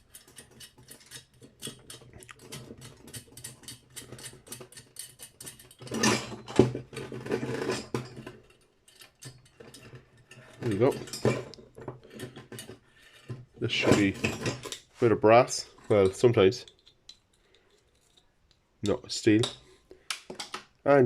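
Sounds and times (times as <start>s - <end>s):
metal clicks and scrapes: 0.0s - 20.6s.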